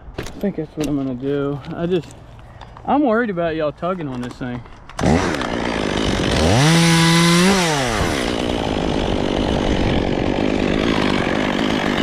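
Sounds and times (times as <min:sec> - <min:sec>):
chainsaw revving and idling: 0:05.0 - 0:12.0.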